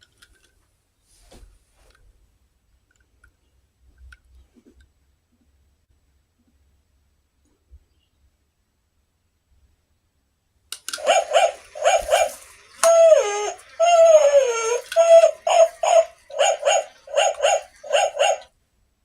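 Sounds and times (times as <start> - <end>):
dog whining: 11.0 - 18.5
dog yapping: 11.0 - 18.5.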